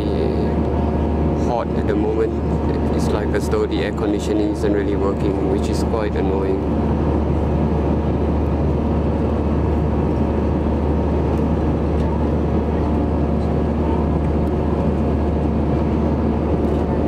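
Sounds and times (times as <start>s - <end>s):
airliner cabin drone: 0.0s - 17.0s.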